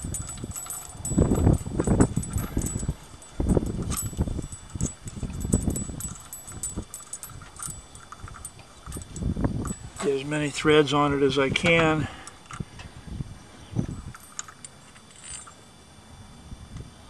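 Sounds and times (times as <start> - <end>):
metallic clinks of tools: 0.0 - 10.6, 13.8 - 15.6.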